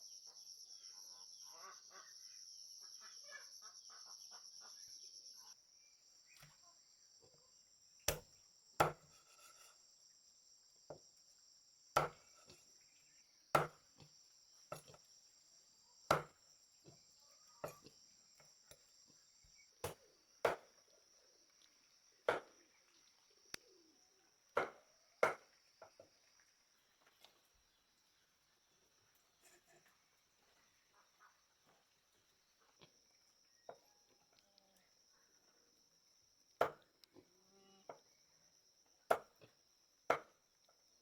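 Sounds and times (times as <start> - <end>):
insects chirring: 0.0 - 41.0
sharp chopping strikes: 8.1 - 9.1, 13.6 - 13.8, 16.1 - 16.3, 19.8 - 20.7, 24.6 - 25.4.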